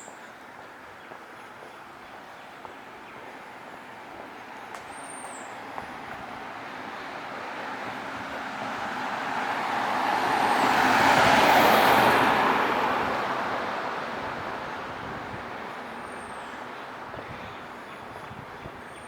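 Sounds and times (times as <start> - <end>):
vehicle passing by: 5.6 - 16.1.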